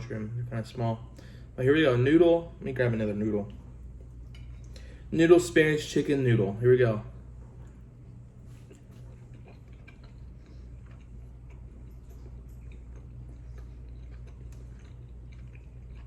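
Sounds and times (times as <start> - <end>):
steady low hum: 0.0 - 16.0
man chewing food: 3.6 - 5.1, 7.2 - 16.0.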